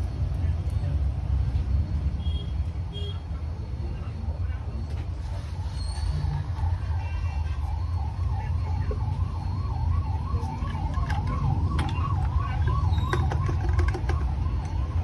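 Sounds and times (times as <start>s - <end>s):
warbling emergency siren: 3.8s - 15.0s.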